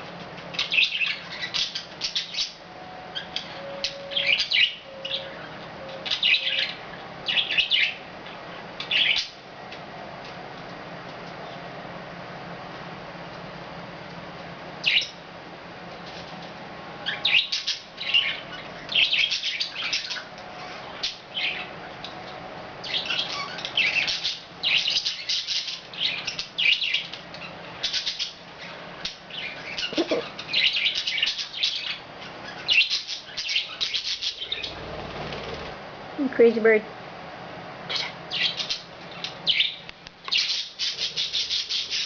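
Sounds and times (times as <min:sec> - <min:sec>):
budgies chirping and chattering: 0:00.5 - 0:08.0, 0:08.8 - 0:09.4, 0:14.8 - 0:15.2, 0:17.0 - 0:35.6, 0:37.9 - 0:42.0.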